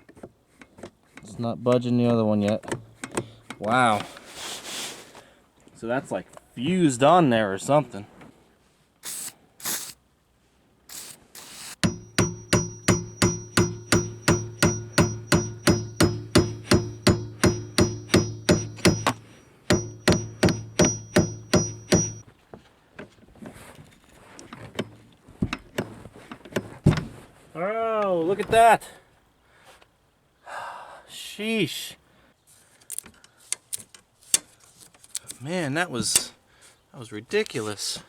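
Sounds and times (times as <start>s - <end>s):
hammer pounding on metal: 11.8s - 22.2s.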